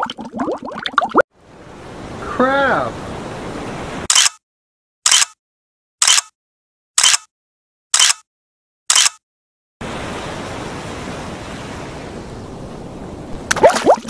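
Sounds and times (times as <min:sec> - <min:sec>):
rising bubbling blips: 0:00.0 - 0:01.2, 0:13.4 - 0:14.0
ocean surf washing: 0:01.4 - 0:04.1, 0:09.8 - 0:14.0
camera shutter clicks: 0:04.1 - 0:04.4, 0:05.1 - 0:05.4, 0:06.0 - 0:06.3, 0:07.0 - 0:07.3, 0:08.0 - 0:08.2, 0:08.9 - 0:09.2.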